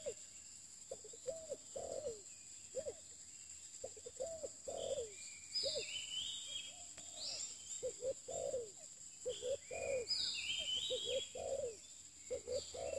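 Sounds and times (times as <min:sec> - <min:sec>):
birds chirping: 0:00.0 - 0:12.9
dove cooing: 0:01.0 - 0:03.0, 0:03.8 - 0:05.9, 0:07.0 - 0:12.9.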